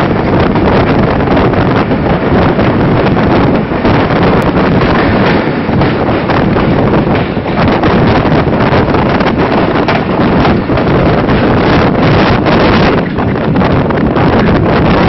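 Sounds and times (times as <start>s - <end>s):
train rumbling on track: 0.0s - 15.0s
wind buffeting microphone: 0.0s - 15.0s.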